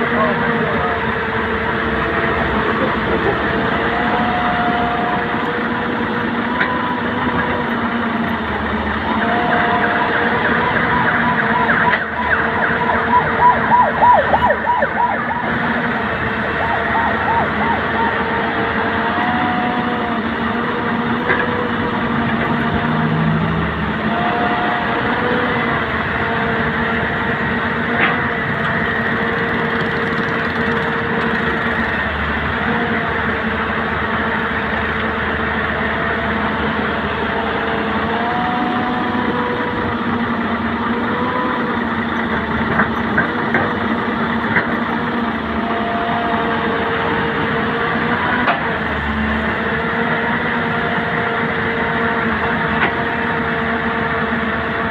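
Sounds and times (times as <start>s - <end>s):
heavy diesel machinery running: 0.0s - 54.9s
high squealing glides: 16.4s - 20.3s.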